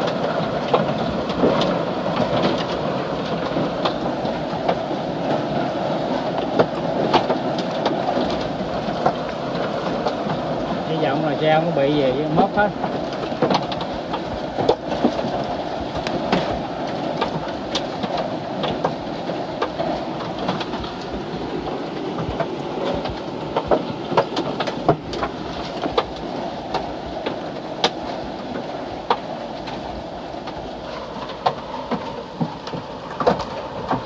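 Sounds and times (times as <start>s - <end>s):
rain patter on a car: 0.0s - 34.0s
hailstones knocking on metal: 6.2s - 28.0s.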